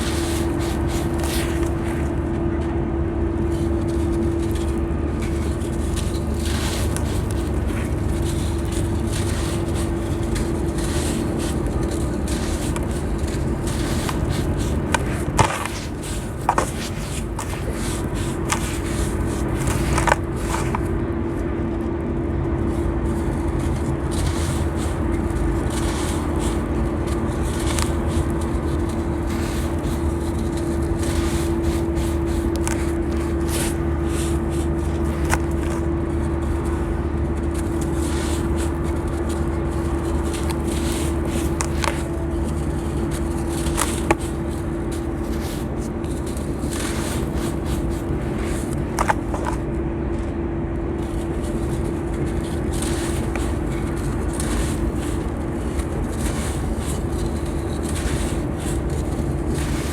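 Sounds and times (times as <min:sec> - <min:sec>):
sand blocks crumbling: 0:00.0 - 0:02.1, 0:03.5 - 0:20.9, 0:23.2 - 0:36.7, 0:37.4 - 0:49.7, 0:51.0 - 0:59.9
steady mechanical hum: 0:00.0 - 0:59.9.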